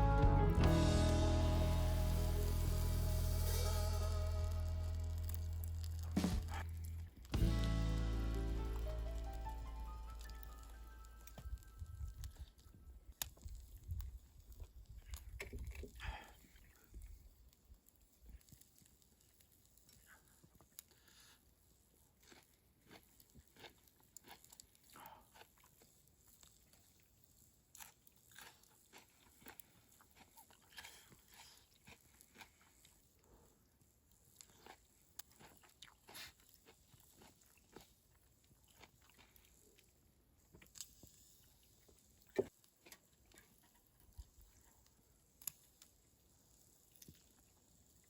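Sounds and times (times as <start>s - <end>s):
person chewing food: 22.2s - 27.1s, 27.7s - 33.3s, 34.3s - 39.9s.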